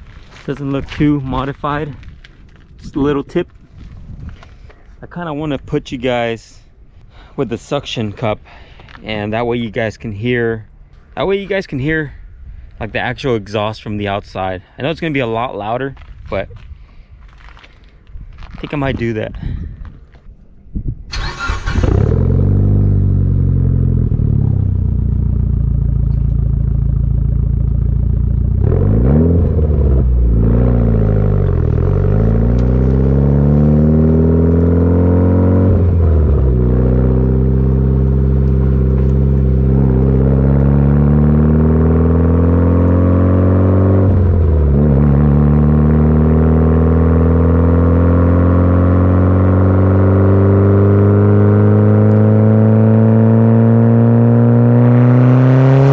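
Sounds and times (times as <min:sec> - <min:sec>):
car engine accelerating: 0:21.1 - 0:55.9.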